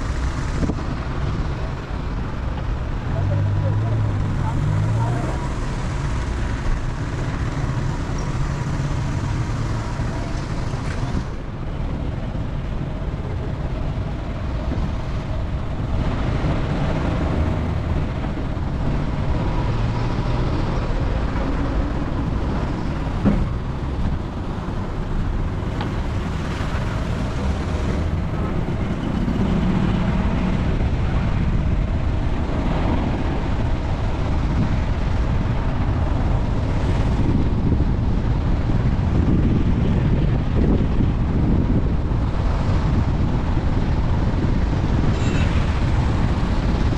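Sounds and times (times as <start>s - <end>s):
car engine and road noise: 0.0s - 46.9s.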